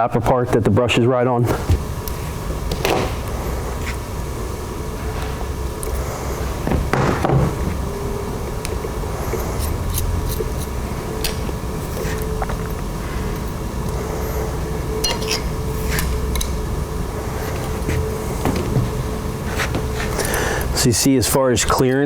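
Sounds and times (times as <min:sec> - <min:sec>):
steady low hum: 0:00.0 - 0:22.0
metal parts and tools clinking: 0:15.0 - 0:16.5.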